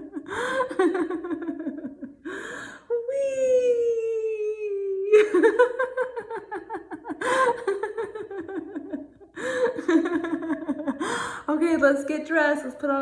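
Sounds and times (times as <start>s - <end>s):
woman laughing: 0.0s - 2.4s, 3.0s - 11.8s
woman calling wee: 2.9s - 5.2s.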